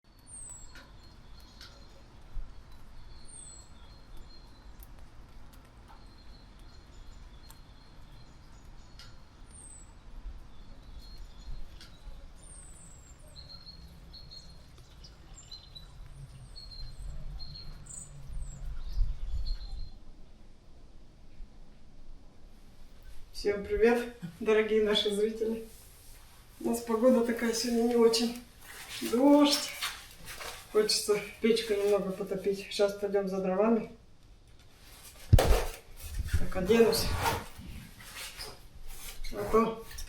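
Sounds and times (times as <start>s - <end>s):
small birds chirping: 0.1s - 20.4s, 22.8s - 34.5s.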